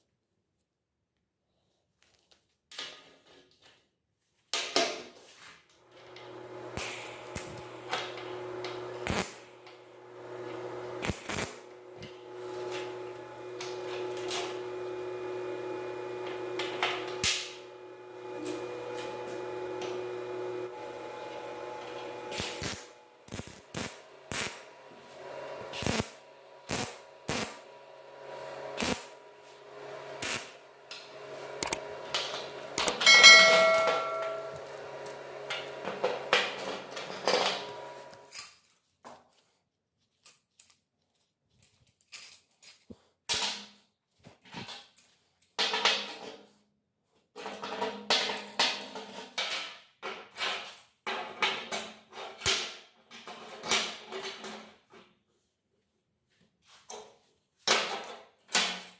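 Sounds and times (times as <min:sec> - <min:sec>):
low machine hum: 0:05.9 - 0:38.2
tools knocking on metal: 0:32.9 - 0:34.6.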